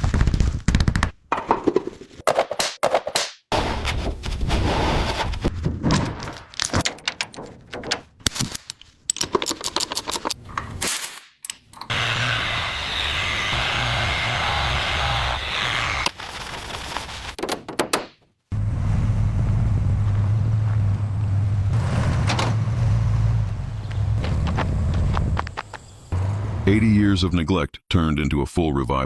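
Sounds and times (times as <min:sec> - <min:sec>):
sharp bangs and knocks: 0:02.3 - 0:08.2.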